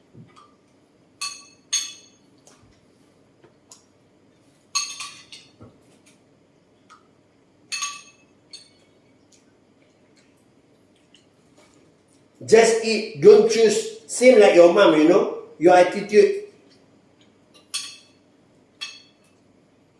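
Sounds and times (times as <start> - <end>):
dishes and utensils clinking: 1.2 - 2.2, 4.7 - 5.7, 7.7 - 9.0, 17.5 - 18.2, 18.8 - 19.4.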